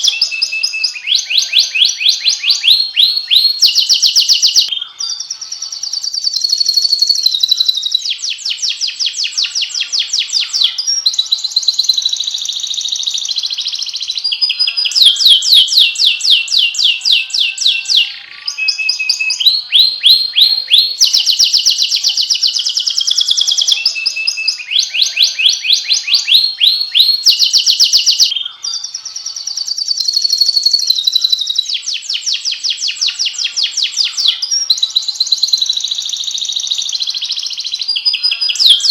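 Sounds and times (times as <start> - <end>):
canary singing fast trills: 0.0 - 38.9.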